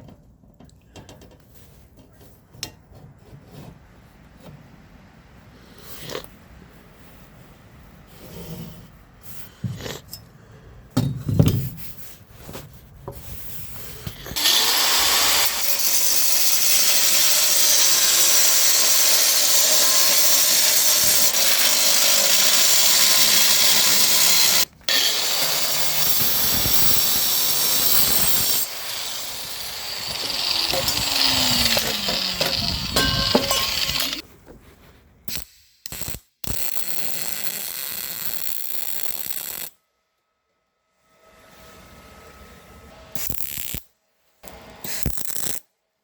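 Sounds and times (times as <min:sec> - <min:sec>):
metal knocks and clanks: 0:11.0 - 0:11.8, 0:30.8 - 0:34.2
power tool grinding metal: 0:14.4 - 0:34.2.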